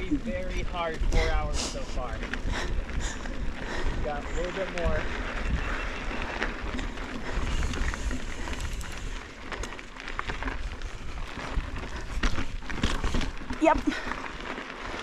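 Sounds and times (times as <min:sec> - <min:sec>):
bike clicks and rattles: 0:00.0 - 0:15.0
wind and tyres rumbling: 0:00.0 - 0:15.0.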